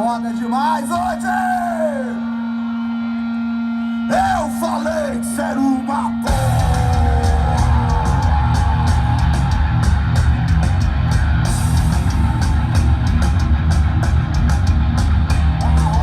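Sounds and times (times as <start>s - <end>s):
heavy rock band playing: 0.0s - 16.0s
drum and cymbal hits: 6.3s - 16.0s.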